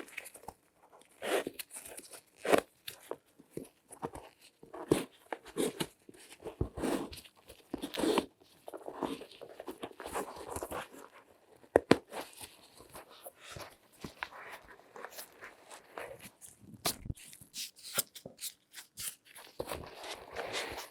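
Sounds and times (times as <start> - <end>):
gloved hands crinkling and rustling: 0.0 - 20.9.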